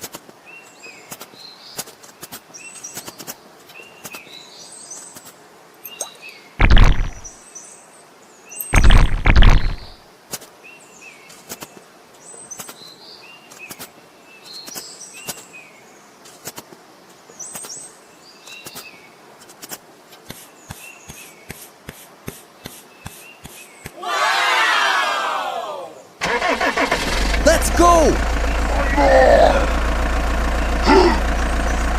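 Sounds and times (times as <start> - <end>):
small birds chirping: 0.0 - 10.0, 10.6 - 24.0, 30.4 - 31.9
heavy thuds: 6.6 - 7.3, 8.8 - 10.0
sharp clicks: 6.6 - 7.3, 8.7 - 10.0.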